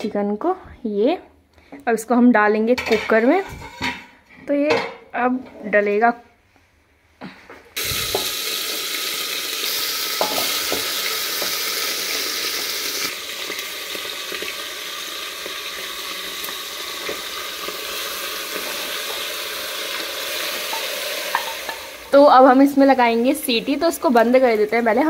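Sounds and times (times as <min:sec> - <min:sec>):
chicken sizzling in hot oil: 0:07.8 - 0:25.0.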